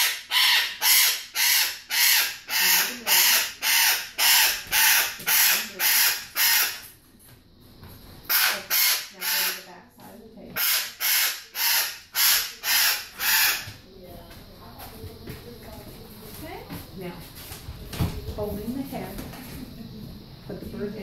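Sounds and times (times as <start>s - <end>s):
bird giving raspy calls: 0.0s - 6.9s, 8.3s - 9.7s, 10.5s - 13.8s.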